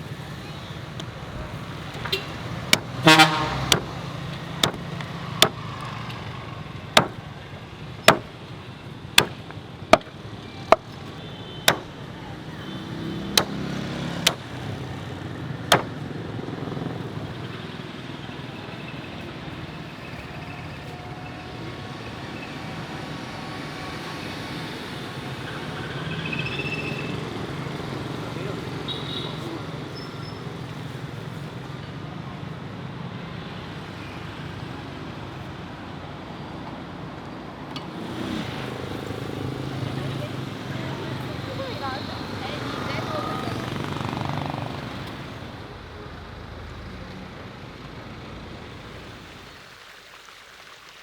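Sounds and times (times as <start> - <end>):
traffic hum: 0.0 - 50.0
car horn toot: 2.0 - 3.9
cleaver chopping meat on a block: 2.7 - 3.0, 3.7 - 4.0, 4.6 - 5.6, 7.0 - 7.2, 8.1 - 8.3, 9.2 - 10.1, 11.7 - 12.0, 13.3 - 14.5, 15.7 - 16.0.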